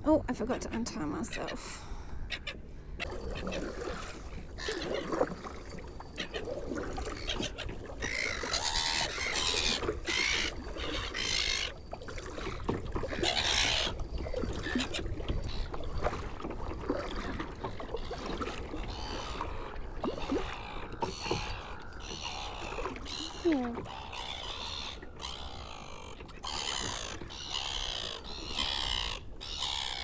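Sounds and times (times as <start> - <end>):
wind rumbling on microphone: 0.0 - 24.0
oars splashing and swishing: 0.1 - 30.0.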